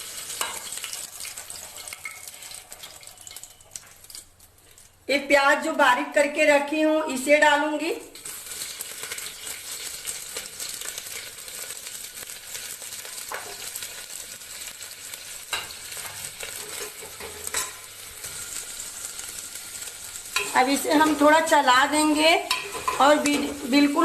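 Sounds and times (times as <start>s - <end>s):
onion sizzling in hot oil: 0.0s - 5.0s, 7.0s - 24.0s.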